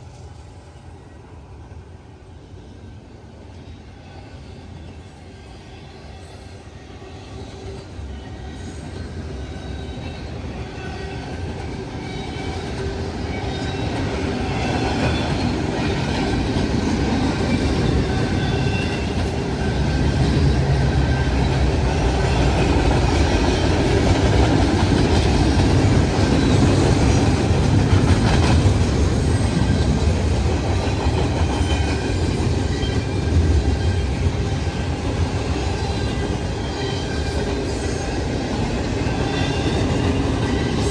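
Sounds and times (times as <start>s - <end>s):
freight train wheels rumbling: 0.0s - 40.9s
rail joints clicking: 10.0s - 40.9s.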